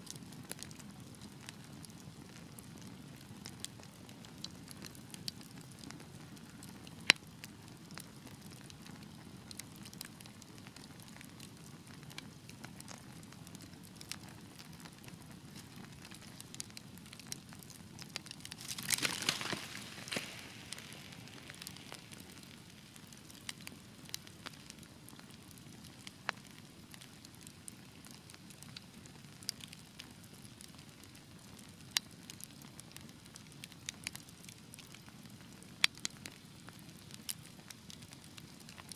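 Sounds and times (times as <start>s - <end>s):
fire crackling in fireplace: 0.0s - 38.9s.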